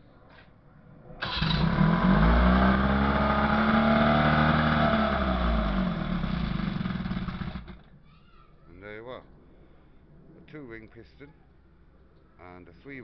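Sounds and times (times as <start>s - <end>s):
outboard motor running: 1.2s - 7.9s.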